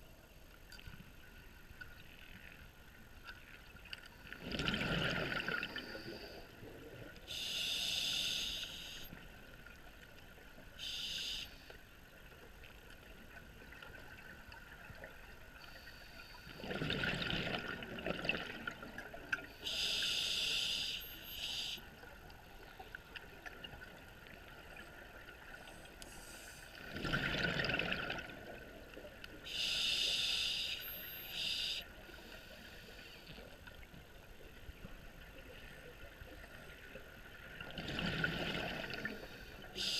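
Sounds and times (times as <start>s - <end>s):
exhaled bubbles: 4.3s - 5.9s, 16.6s - 19.4s, 26.8s - 28.8s, 37.6s - 39.2s
inhale through regulator: 7.3s - 9.1s, 19.6s - 21.8s, 29.5s - 33.2s, 39.2s - 39.9s.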